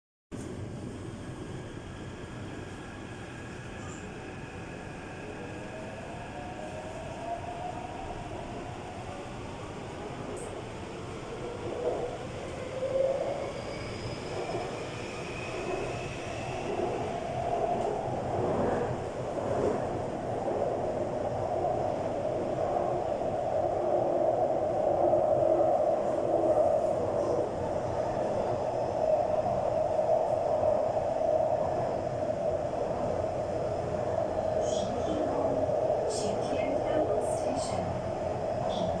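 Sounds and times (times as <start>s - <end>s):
train wheels rumbling on rail: 9.1s - 21.3s.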